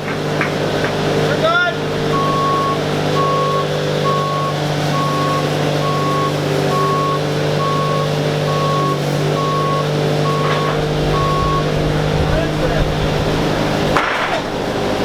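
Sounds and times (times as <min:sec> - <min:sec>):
heavy machine engine running: 0:00.0 - 0:15.0
reversing alarm beeping: 0:02.1 - 0:13.9.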